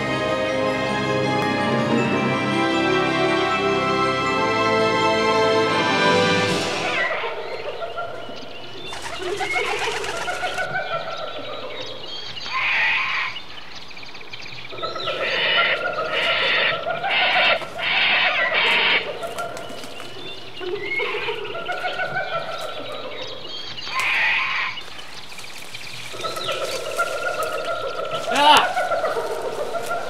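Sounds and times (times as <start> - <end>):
birds cooing: 6.8 - 30.0.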